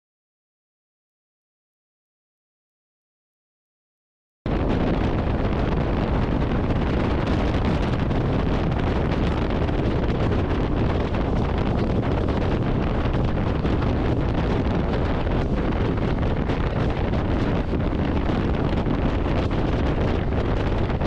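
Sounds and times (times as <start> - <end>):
road and vehicle noise: 4.5 - 21.0
wind rushing on microphone: 4.5 - 21.0.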